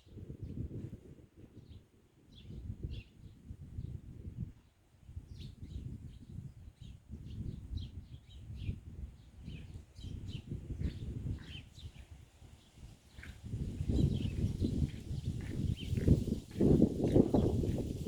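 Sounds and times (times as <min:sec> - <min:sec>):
small birds chirping: 0:04.6 - 0:17.8.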